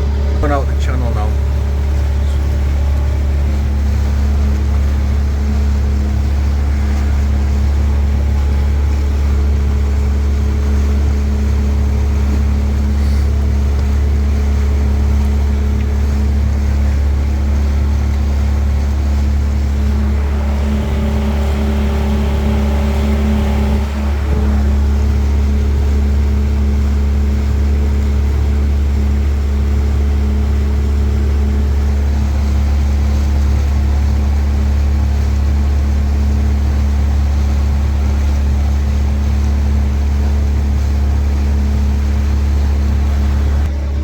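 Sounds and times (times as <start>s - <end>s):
boat motor droning: 0.0s - 44.0s.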